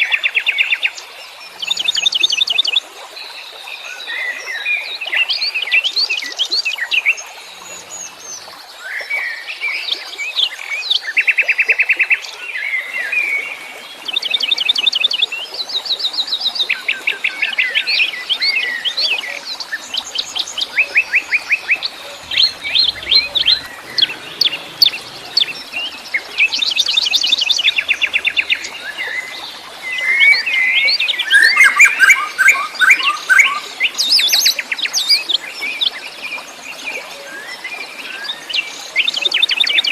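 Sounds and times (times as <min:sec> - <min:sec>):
songbirds singing and calling: 0:12.3 - 0:39.9.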